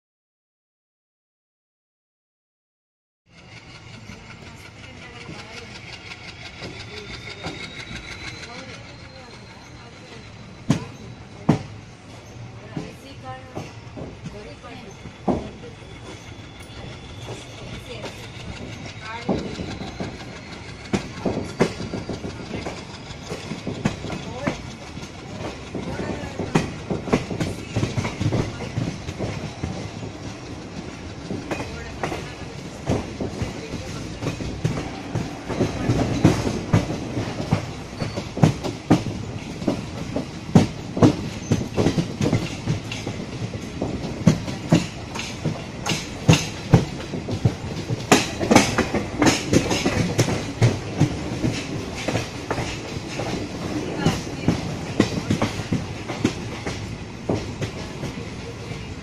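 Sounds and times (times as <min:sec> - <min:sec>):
train running rush: 0:03.3 - 0:59.0
wheels clattering over rail joints: 0:03.3 - 0:59.0.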